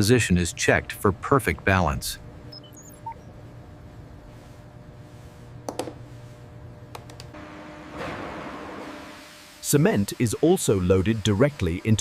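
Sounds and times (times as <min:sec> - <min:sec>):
low electrical hum: 0:00.0 - 0:12.0
short electronic beeps: 0:02.5 - 0:03.3.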